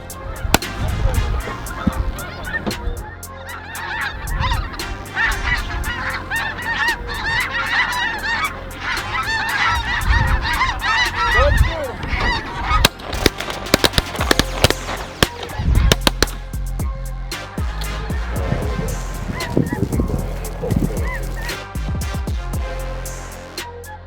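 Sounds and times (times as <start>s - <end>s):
geese honking: 0.0s - 16.6s, 17.3s - 23.6s
sharp clicks: 12.8s - 16.4s.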